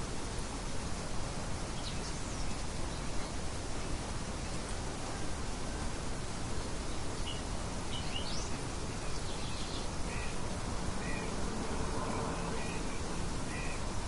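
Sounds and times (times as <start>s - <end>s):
light wind rushing: 0.0s - 14.0s
birds chirping: 1.7s - 3.4s, 6.6s - 11.4s, 12.1s - 13.8s.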